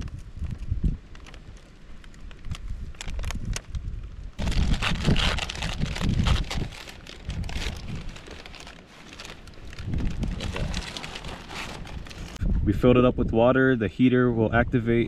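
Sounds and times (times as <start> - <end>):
plastic packaging crinkling: 4.4 - 12.4.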